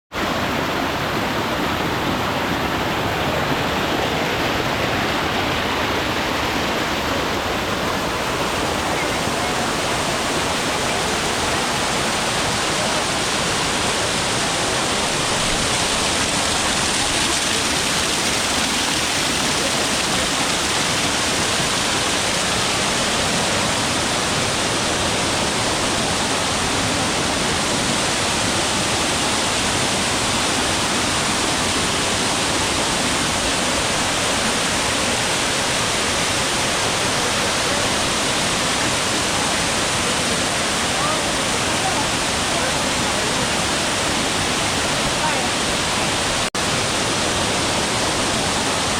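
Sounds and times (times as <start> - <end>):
waterfall pouring: 0.2 - 29.4.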